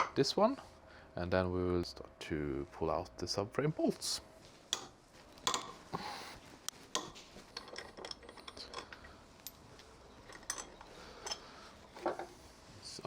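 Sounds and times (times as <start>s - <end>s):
metallic clicks and clinks: 6.9s - 11.6s.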